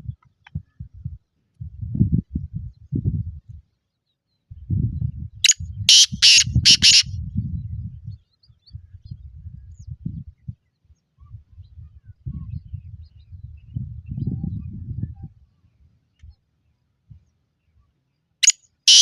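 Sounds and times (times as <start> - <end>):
francolin calling: 5.9 - 7.0, 18.4 - 19.0.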